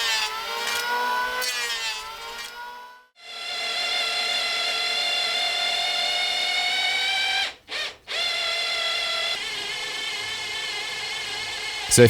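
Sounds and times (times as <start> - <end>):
electric drill whining: 0.0 - 11.9.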